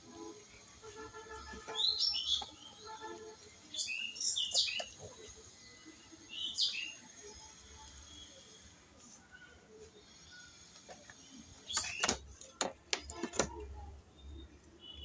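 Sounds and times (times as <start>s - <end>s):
birds chirping: 0.3s - 15.0s.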